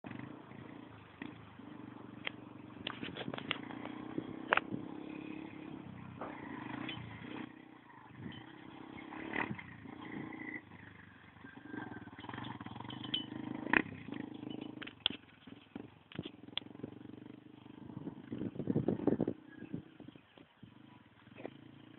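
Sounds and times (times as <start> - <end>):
motorcycle engine droning: 0.0 - 21.9
sharp clicks and knocks: 14.6 - 16.7.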